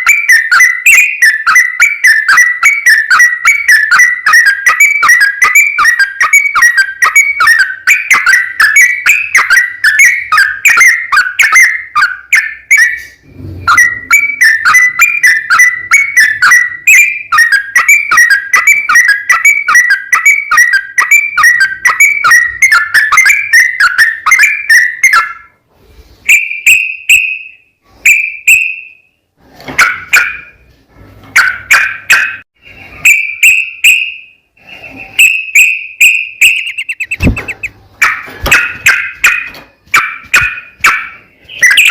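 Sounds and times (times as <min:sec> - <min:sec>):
bulbul chattering whistled notes: 0:00.0 - 0:25.4, 0:32.6 - 0:37.8.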